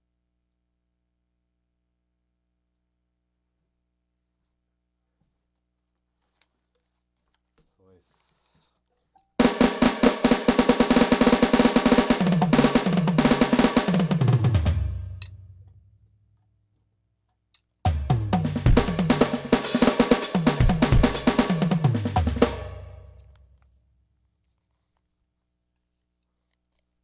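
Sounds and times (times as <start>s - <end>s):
electronic drum kit played: 9.4s - 15.4s, 17.9s - 23.2s.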